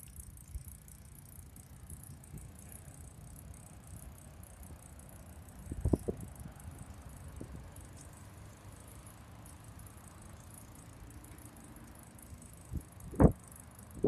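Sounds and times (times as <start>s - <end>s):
bicycle freewheel ticking: 0.0s - 14.0s
wind: 0.0s - 14.0s.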